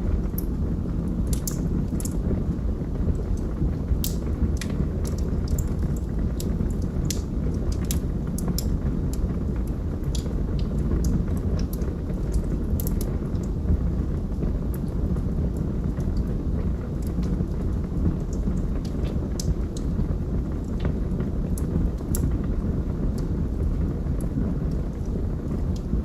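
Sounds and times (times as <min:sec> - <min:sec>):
low rumble of flames: 0:00.0 - 0:26.0
wood crackling and popping: 0:00.0 - 0:26.0.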